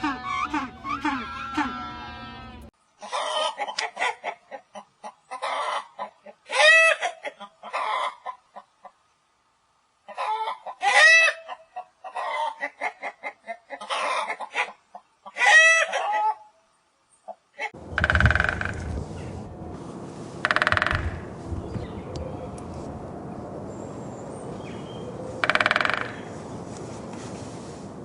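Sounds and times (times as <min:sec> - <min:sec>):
chicken squawk: 0:03.0 - 0:08.7, 0:10.1 - 0:16.5
chickens clucking: 0:03.0 - 0:09.0, 0:10.0 - 0:16.4.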